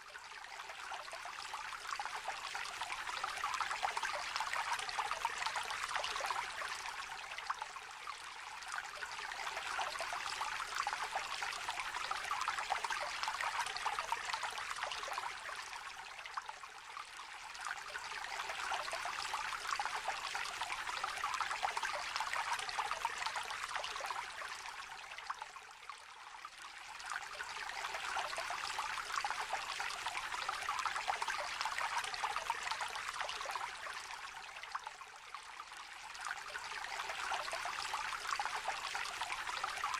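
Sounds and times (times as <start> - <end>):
stream babbling over stones: 26.5 - 34.9, 35.6 - 39.9.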